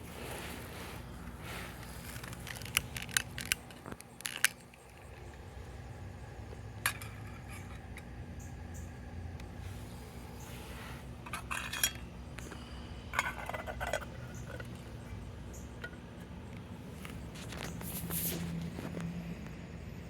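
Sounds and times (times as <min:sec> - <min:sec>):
metal pot and stove clinking: 0:06.8 - 0:08.1, 0:11.2 - 0:14.9.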